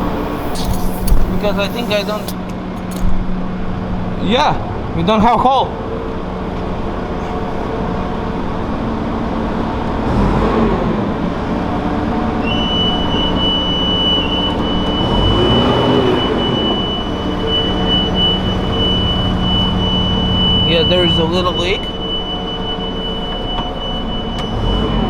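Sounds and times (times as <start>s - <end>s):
thin high whistle: 0.0s - 2.5s, 12.4s - 25.0s
engine running: 0.0s - 25.0s.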